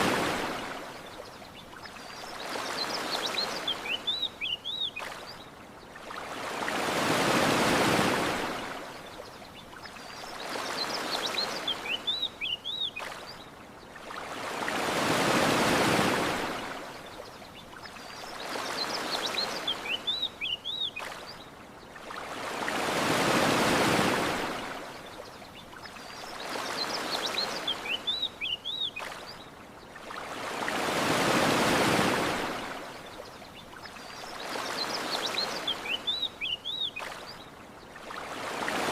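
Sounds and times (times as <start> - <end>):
ocean waves washing onto shore: 0.0 - 38.9
bird chirping: 1.5 - 5.1, 33.5 - 37.4.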